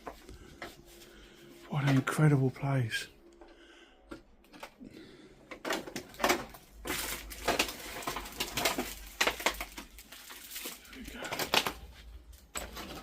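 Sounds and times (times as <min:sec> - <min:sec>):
debris crunching and crackling: 0:05.5 - 0:13.0.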